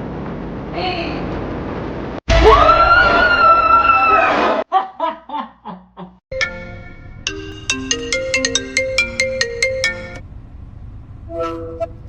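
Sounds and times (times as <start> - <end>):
phone ringtone melody: 6.3 - 10.2.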